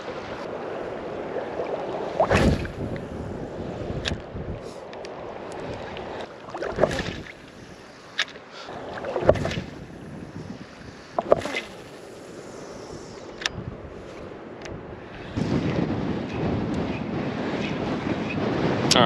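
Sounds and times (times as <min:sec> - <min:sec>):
strong wind buffeting microphone: 0:00.0 - 0:08.0, 0:08.7 - 0:19.0
water splashing surges: 0:00.0 - 0:12.9.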